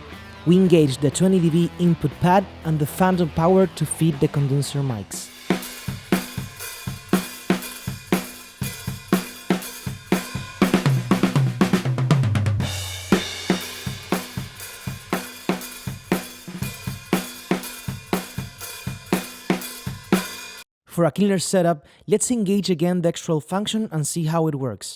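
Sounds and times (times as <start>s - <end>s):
drum kit groove: 0.0s - 20.6s
drum fill: 5.2s - 20.6s
cymbal crash: 5.3s - 11.4s, 12.6s - 20.6s.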